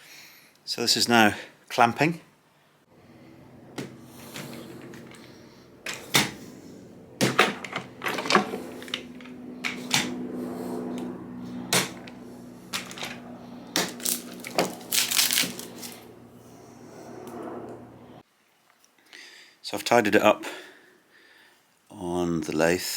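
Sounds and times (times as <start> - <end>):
steady low hum: 2.9 - 18.2
clamps clacking and knocking: 7.2 - 10.1.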